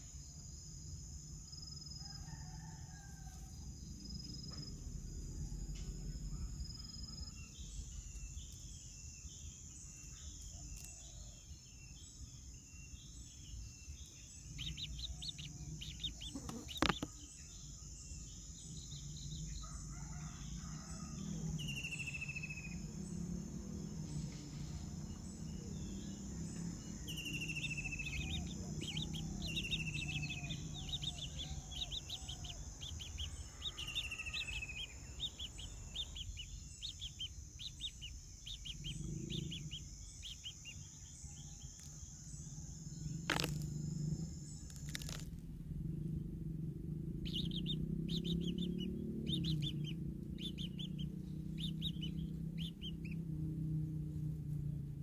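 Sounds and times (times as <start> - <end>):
birds chirping and whistling: 12.7 - 19.6, 21.2 - 23.2, 24.0 - 41.2, 47.1 - 54.3.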